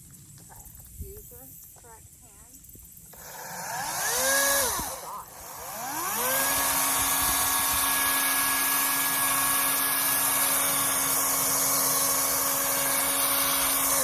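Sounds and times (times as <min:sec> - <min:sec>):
chainsaw cutting with steady whine: 0:03.0 - 0:14.0.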